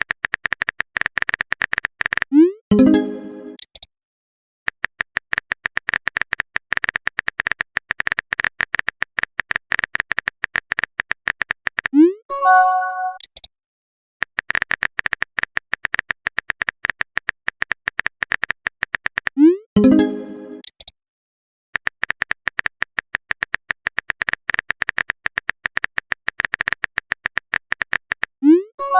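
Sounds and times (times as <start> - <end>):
electronic text-scroll blips: 0.0 - 3.9, 4.7 - 13.5, 14.2 - 20.9, 21.8 - 28.7
chime-like tones: 2.7 - 3.6.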